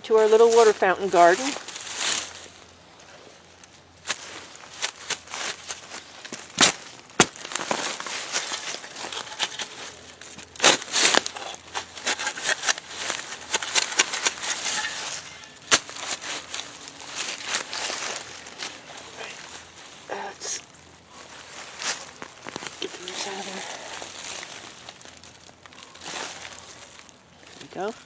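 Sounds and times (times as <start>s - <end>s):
crunching and scraping of dirt: 0.0s - 28.0s
tool striking ground: 4.0s - 19.8s.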